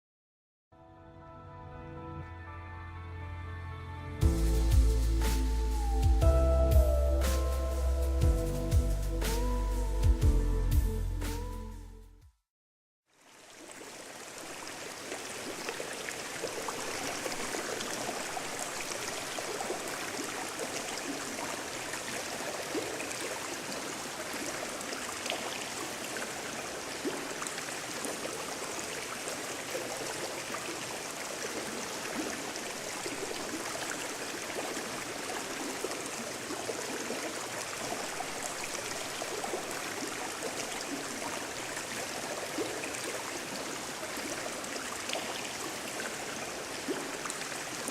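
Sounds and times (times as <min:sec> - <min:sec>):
stream rushing and gurgling: 0:13.1 - 0:47.9.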